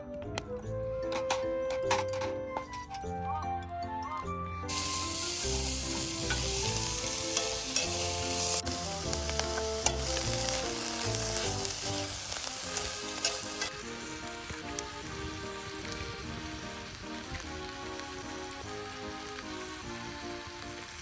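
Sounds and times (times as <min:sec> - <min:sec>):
background music: 0:00.0 - 0:21.0
food sizzling in a pan: 0:04.7 - 0:21.0.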